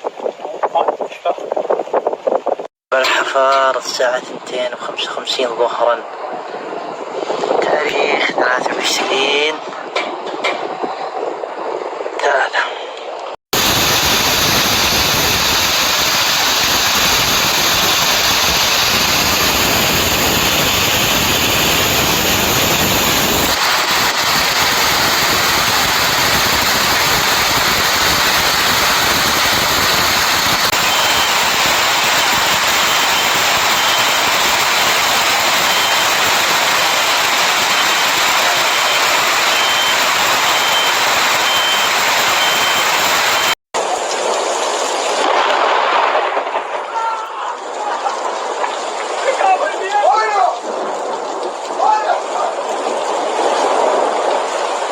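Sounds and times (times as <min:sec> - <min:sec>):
rushing storm noise: 0:00.0 - 0:54.9
faint high beep: 0:38.9 - 0:43.6.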